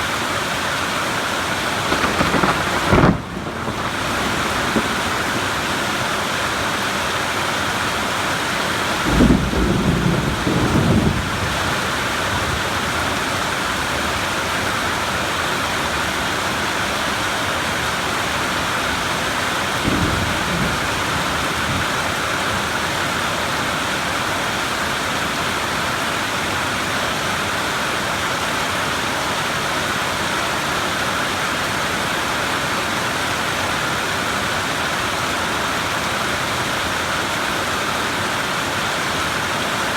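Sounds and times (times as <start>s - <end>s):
steady rain falling: 0.0s - 39.9s
thunder rumbling: 1.6s - 7.4s, 8.9s - 14.3s, 18.2s - 23.0s.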